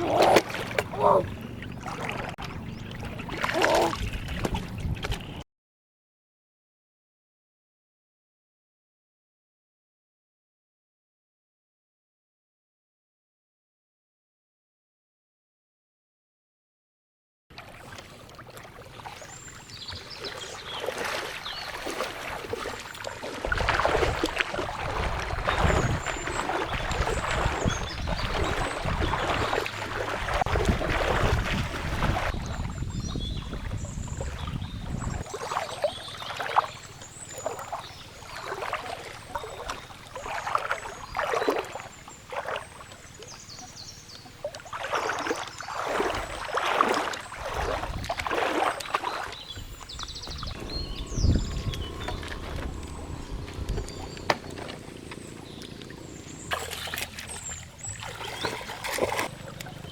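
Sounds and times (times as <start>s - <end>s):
water splashing and sloshing: 0.0s - 5.4s, 17.5s - 59.9s.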